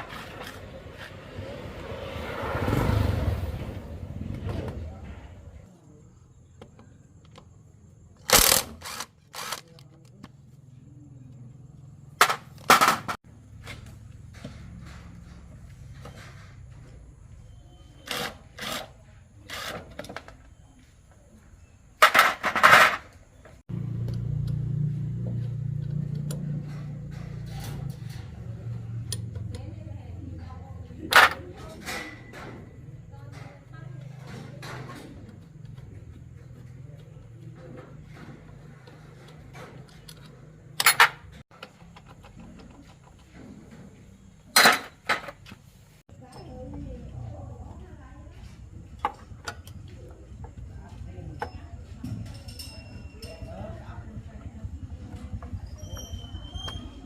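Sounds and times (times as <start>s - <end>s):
rattling burst: 8.2s - 9.6s
metal tools clinking: 51.4s - 53.8s.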